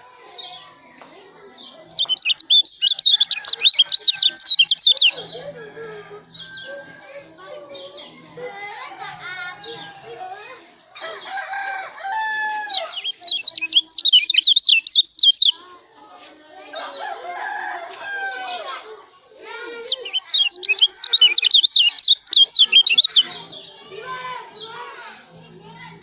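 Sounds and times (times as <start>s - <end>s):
songbird warbling: 1.9s - 5.4s, 12.7s - 15.6s, 19.8s - 23.5s
rooster crowing: 11.0s - 12.9s, 16.8s - 18.6s.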